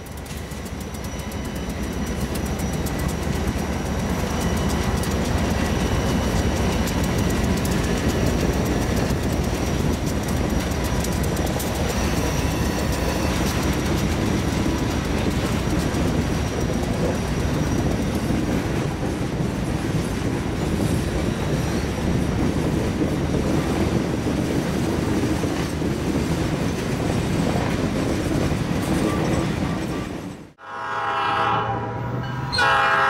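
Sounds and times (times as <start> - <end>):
thin steady wheel squeals: 0.0 - 18.6
wheels clicking over rails: 0.0 - 30.4
freight train rolling past: 0.0 - 33.0.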